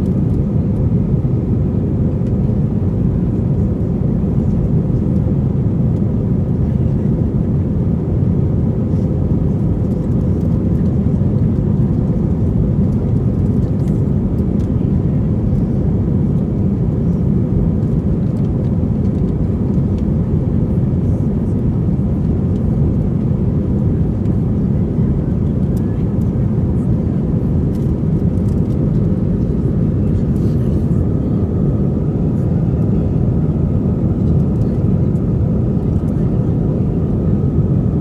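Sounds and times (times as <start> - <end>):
airliner engines roaring in cabin: 0.0 - 38.0.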